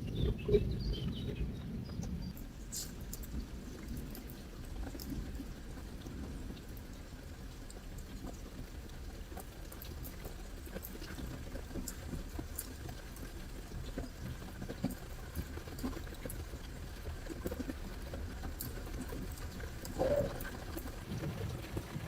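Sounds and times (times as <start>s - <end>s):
flowing river water: 2.4s - 22.0s
campfire crackling and popping: 9.2s - 22.0s.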